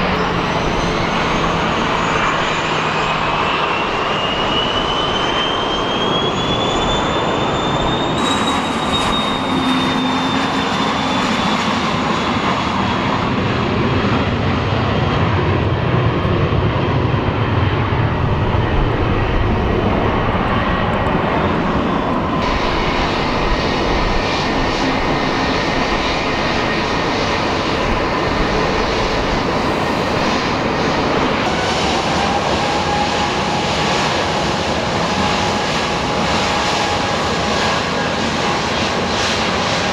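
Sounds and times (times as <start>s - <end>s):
rising jet whine: 0.0s - 14.6s, 16.0s - 33.2s
turbofans whining: 0.0s - 14.6s, 15.7s - 31.7s
jet engines at takeoff: 0.0s - 39.9s.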